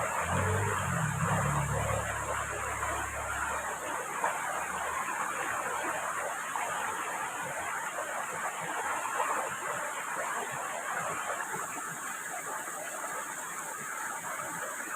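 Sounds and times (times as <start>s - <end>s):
low rumble: 0.0s - 3.9s
heavy rain falling: 0.0s - 5.6s.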